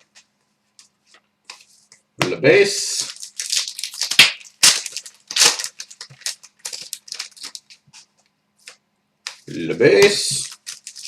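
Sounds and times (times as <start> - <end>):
cards flipped by hand: 4.0 - 9.5.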